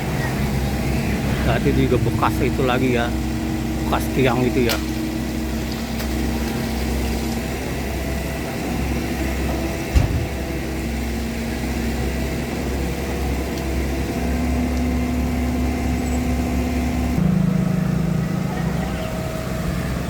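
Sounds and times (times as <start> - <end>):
engine running: 0.0 - 20.0
thump: 9.9 - 10.4.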